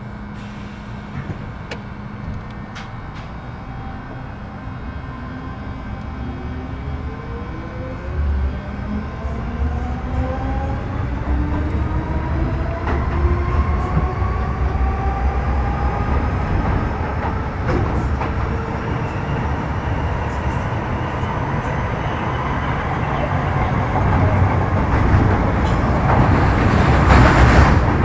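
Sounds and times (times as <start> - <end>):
rumble of motors and wheels: 0.0 - 28.0.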